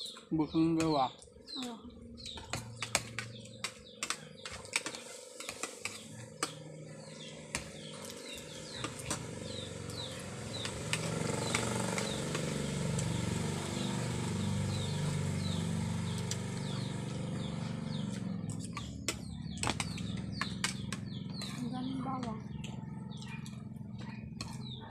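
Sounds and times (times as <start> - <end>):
bird chirping: 0.0 - 24.9
low engine rumble: 6.0 - 24.9.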